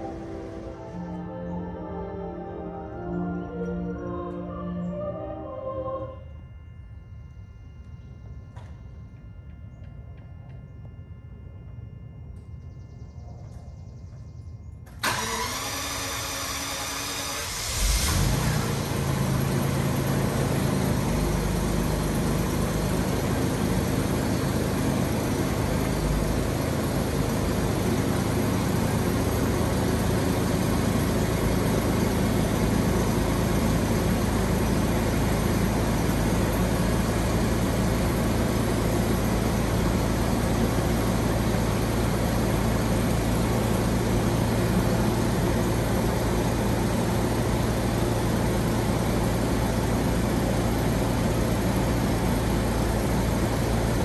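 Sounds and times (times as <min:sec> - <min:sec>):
car engine idling: 0:00.0 - 0:05.3, 0:14.9 - 0:54.0
engine starter cranking: 0:14.9 - 0:19.8.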